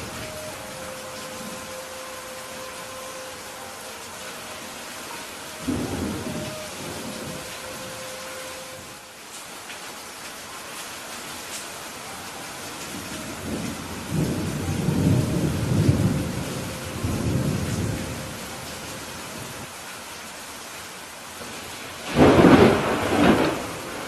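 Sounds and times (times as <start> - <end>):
steady rain hiss: 0.0 - 24.0
thunder rumbling: 5.2 - 9.0, 12.8 - 19.6, 21.4 - 24.0.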